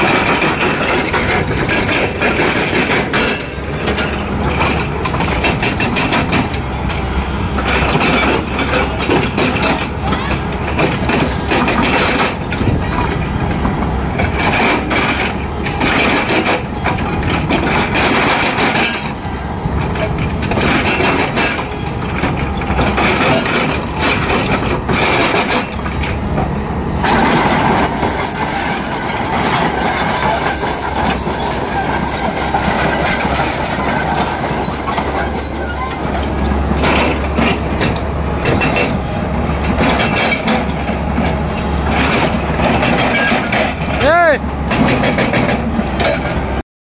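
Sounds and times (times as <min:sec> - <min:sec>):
metal clanks: 0:00.0 - 0:19.2, 0:19.8 - 0:46.5
excavator running: 0:00.0 - 0:46.6
high-pitched squeal: 0:27.0 - 0:36.6.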